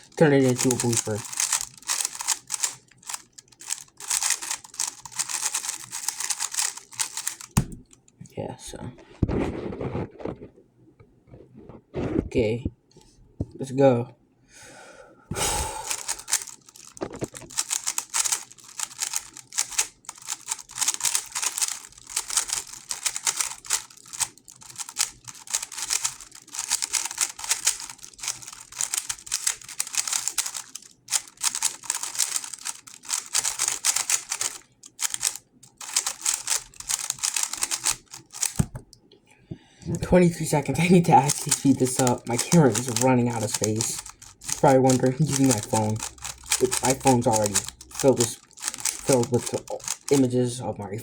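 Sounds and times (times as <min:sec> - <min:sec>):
puzzle cube layer clicks: 0:00.4 - 0:07.9, 0:15.9 - 0:38.9, 0:40.4 - 0:50.4.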